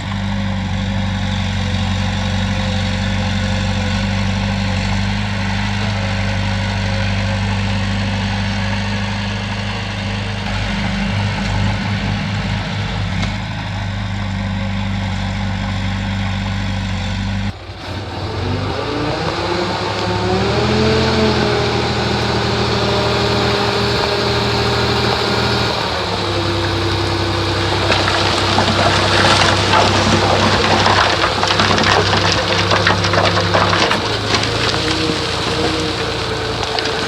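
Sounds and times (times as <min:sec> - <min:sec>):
heavy diesel engine running: 0:00.0 - 0:37.0.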